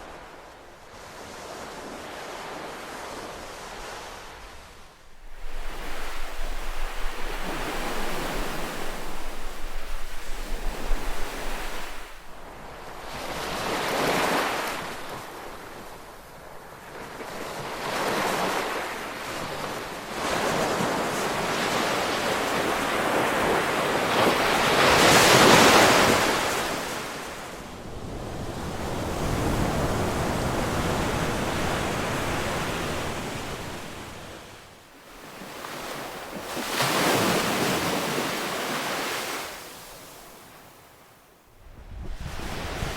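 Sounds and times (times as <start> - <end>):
ocean waves breaking on shore: 0.0 - 42.9
wind rumbling on microphone: 4.3 - 16.7, 41.6 - 42.9.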